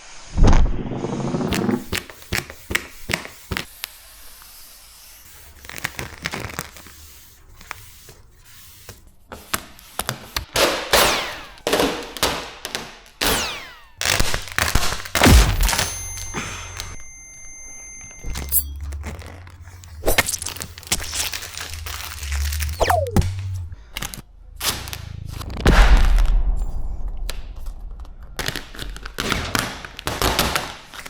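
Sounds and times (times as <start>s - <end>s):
film squeaks: 13.3s - 24.1s
vinyl film crackling and snapping: 18.8s - 23.3s.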